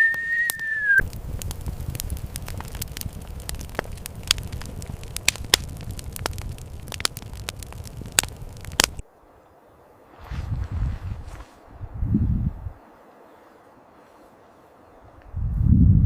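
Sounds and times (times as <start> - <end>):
campfire crackling and popping: 0.0 - 9.1.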